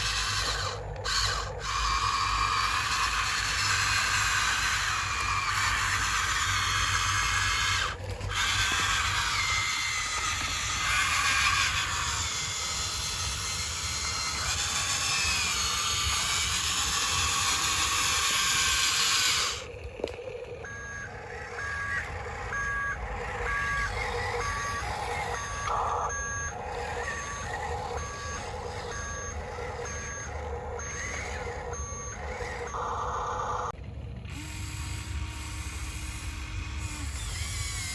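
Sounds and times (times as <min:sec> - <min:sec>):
reversing beeper: 0:00.0 - 0:33.7
loud whirring hiss: 0:34.3 - 0:37.9.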